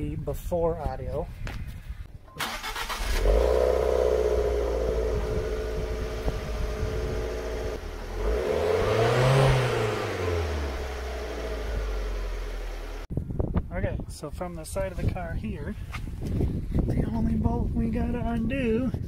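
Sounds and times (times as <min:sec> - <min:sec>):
car engine idling and revving: 0:02.6 - 0:13.1.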